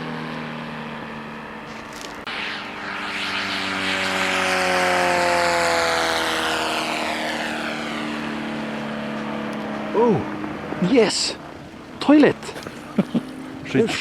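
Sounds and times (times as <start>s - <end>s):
model aeroplane engine flying past: 0.0s - 14.0s.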